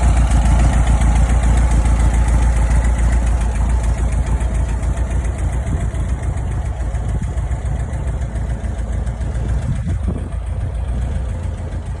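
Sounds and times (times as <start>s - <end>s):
air-cooled engine idling: 0.0s - 12.0s.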